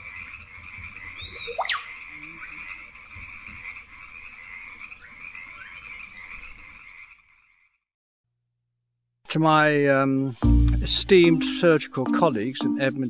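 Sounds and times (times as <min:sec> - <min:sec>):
frogs and insects calling: 0:00.0 - 0:07.9.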